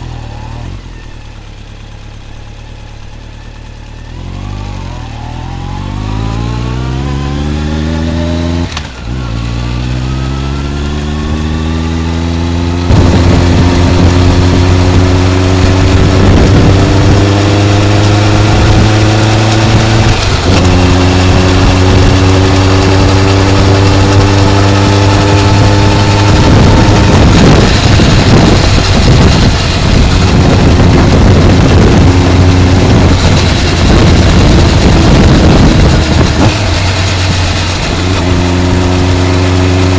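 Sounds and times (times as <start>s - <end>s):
motorcycle engine accelerating: 0.0s - 39.9s
wind noise on microphone: 10.0s - 39.9s.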